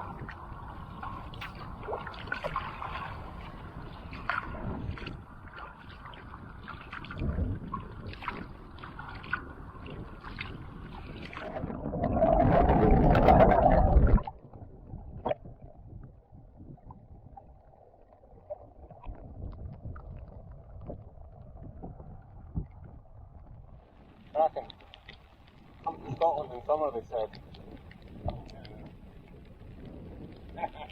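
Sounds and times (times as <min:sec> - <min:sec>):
paddle strokes splashing: 0:00.0 - 0:11.8
water lapping against hull: 0:00.0 - 0:30.9.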